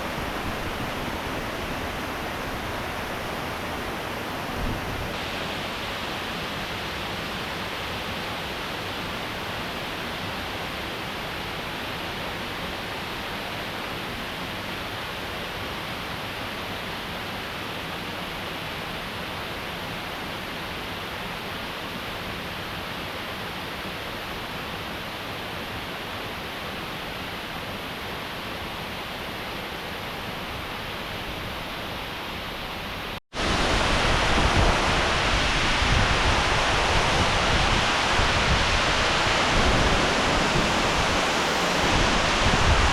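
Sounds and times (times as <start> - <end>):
waterfall rushing: 0.0 - 7.8, 31.6 - 42.9.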